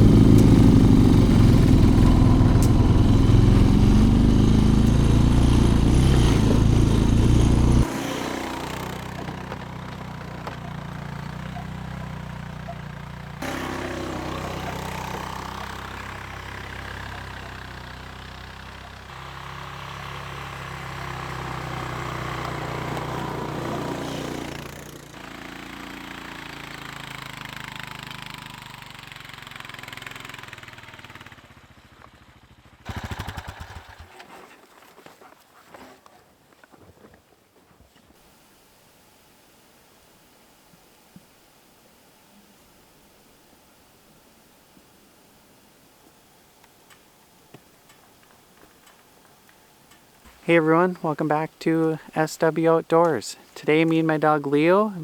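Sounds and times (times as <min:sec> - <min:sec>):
atv engine running: 0:00.0 - 0:34.4.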